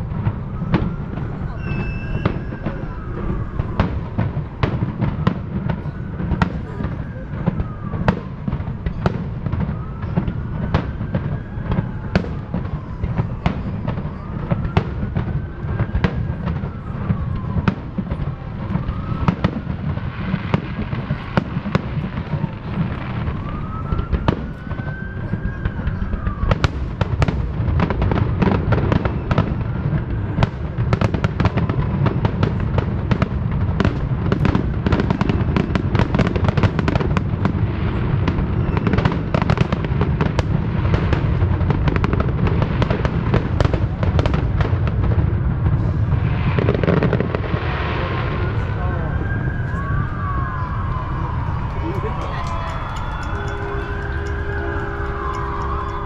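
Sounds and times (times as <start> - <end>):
fireworks bangs and crackles: 0.0 - 56.0
rising and falling wailing tone: 48.7 - 56.0.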